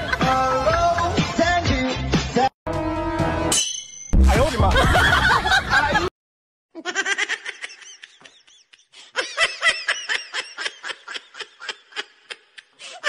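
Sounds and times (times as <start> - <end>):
music: 0.0 - 3.6, 4.2 - 5.2
person laughing: 4.6 - 6.1, 6.8 - 13.0.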